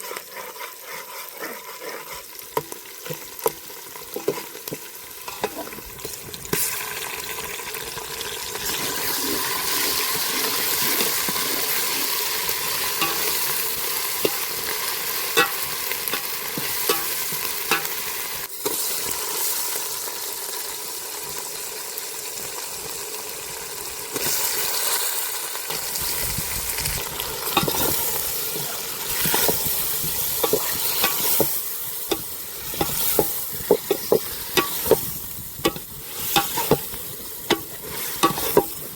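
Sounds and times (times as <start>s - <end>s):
meat sizzling in a pan: 0.0s - 38.9s
spatula scraping a pan: 8.6s - 18.0s, 27.4s - 38.9s.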